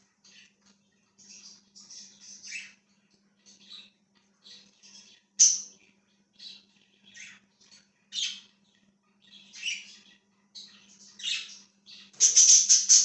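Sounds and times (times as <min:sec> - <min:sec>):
budgerigars chirping and squawking: 0:00.2 - 0:13.0.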